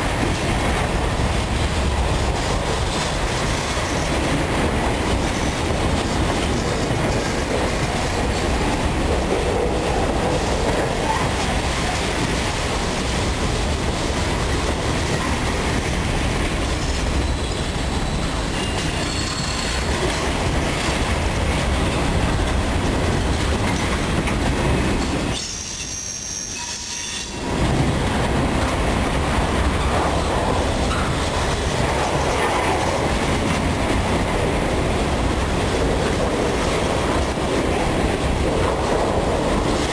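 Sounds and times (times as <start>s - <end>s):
train wheels clicking over rail joints: 0.0s - 39.9s
high wheel squeal: 17.2s - 20.0s, 25.4s - 27.4s.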